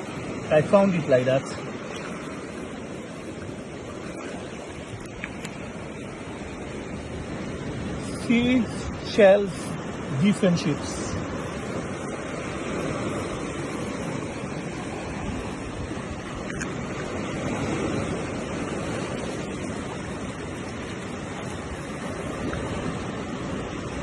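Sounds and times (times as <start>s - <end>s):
sea surf: 0.0s - 24.0s
wind noise on microphone: 11.0s - 24.0s.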